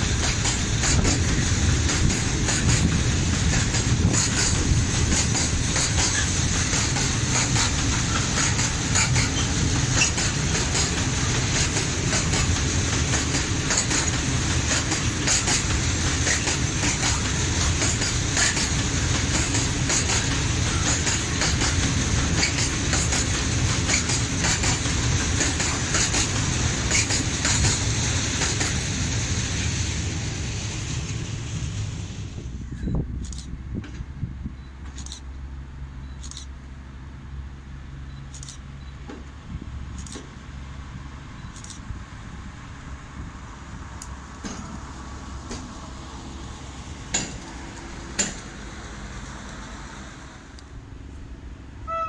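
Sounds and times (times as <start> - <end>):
freight train rolling past: 0.0 - 52.0
wheels clicking over rail joints: 0.1 - 28.9, 47.0 - 51.3.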